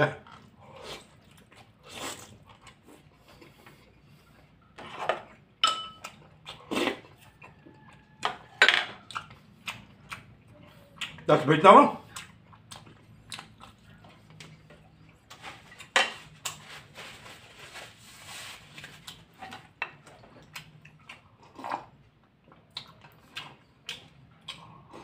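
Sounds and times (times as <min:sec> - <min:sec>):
wet chewing and mouth smacks: 0:00.2 - 0:04.7, 0:05.3 - 0:11.3, 0:12.0 - 0:16.6, 0:18.8 - 0:25.0
rustling: 0:16.5 - 0:19.1.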